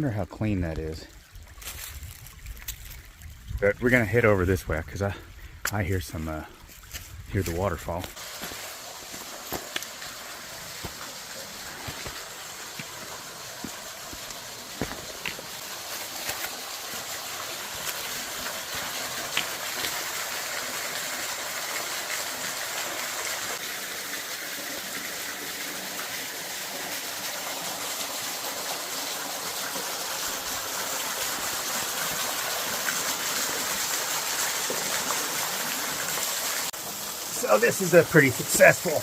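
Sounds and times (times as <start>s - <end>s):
small waterfall rushing: 8.1s - 39.0s.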